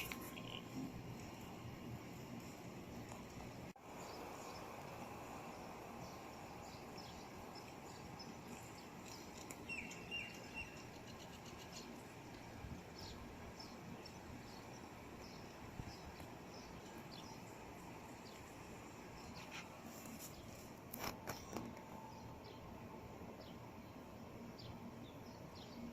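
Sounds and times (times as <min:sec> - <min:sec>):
small birds chirping: 0:00.0 - 0:22.7
outdoor background hiss: 0:00.0 - 0:25.9.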